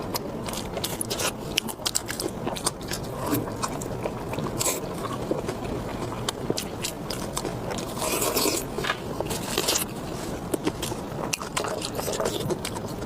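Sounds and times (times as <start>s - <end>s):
person biting and chewing food: 0.0s - 13.0s.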